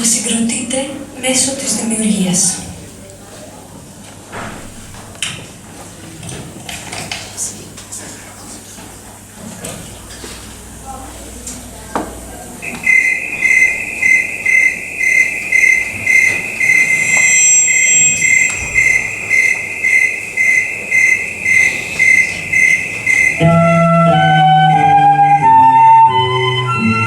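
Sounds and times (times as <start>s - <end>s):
high tone with chirping pulse: 12.6s - 25.9s
low sustained notes: 13.8s - 26.8s.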